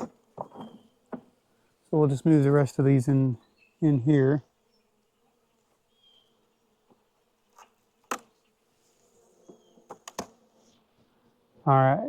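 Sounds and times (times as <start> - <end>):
wooden hive frame knocks: 0.0 - 1.4, 7.6 - 8.4, 9.4 - 10.4
honeybees buzzing: 0.0 - 12.0.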